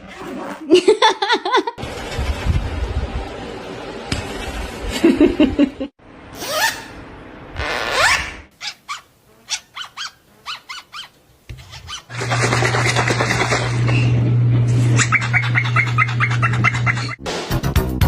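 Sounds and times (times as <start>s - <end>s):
parrot bark-like calls: 8.0s - 12.1s.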